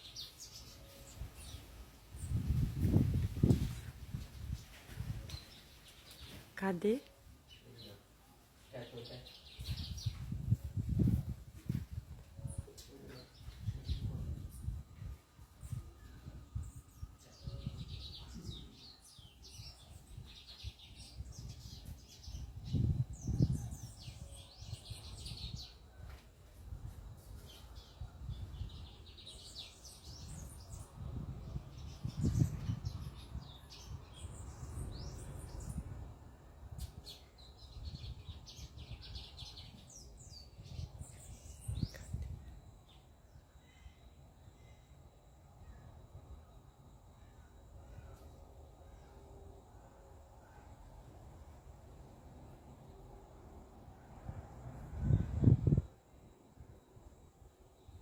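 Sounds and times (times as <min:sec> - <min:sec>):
small birds chirping: 0:00.0 - 0:26.1, 0:26.8 - 0:36.0, 0:36.8 - 0:44.0.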